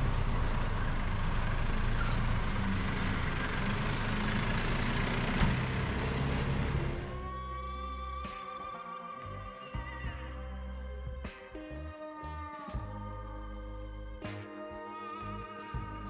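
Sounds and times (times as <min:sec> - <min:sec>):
motor engine rumbling: 0:00.0 - 0:08.3
background music with held tones: 0:07.0 - 0:16.0.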